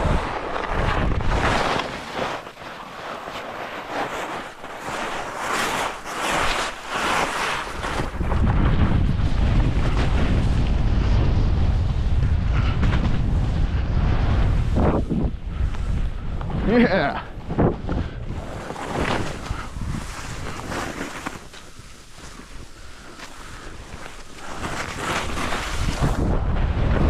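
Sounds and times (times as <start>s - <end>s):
wind buffeting the microphone: 0.0s - 2.6s, 7.6s - 27.0s
skis swishing over snow: 0.0s - 11.9s, 12.5s - 16.0s, 18.3s - 27.0s.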